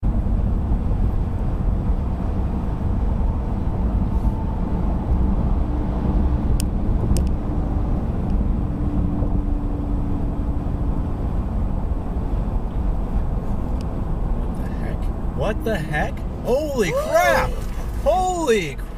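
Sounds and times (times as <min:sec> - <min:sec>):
car road and engine rumble: 0:00.0 - 0:18.9.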